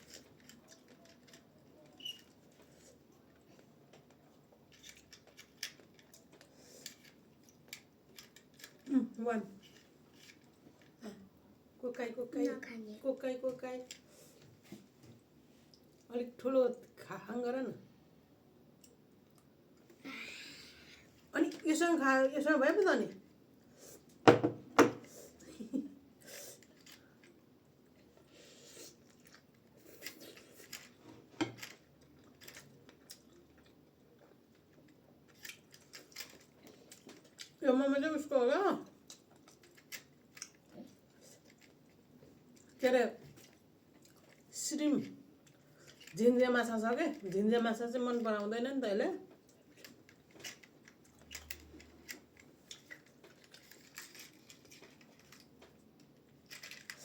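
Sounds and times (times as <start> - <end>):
chewing and mouth sounds: 31.8 - 37.6, 43.4 - 44.5.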